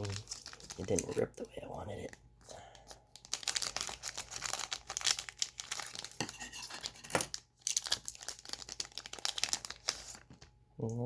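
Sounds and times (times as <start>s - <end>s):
wrapper crinkling and tearing: 0.0s - 1.3s, 2.8s - 10.5s.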